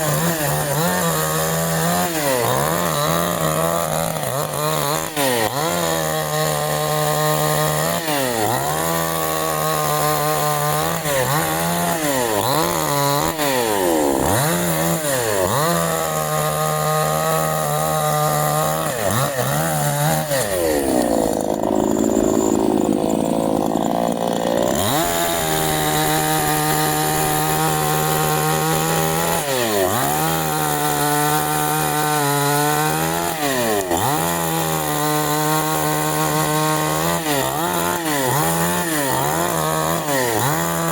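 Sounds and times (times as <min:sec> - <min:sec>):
chainsaw revving and cutting wood: 0:00.0 - 0:40.9.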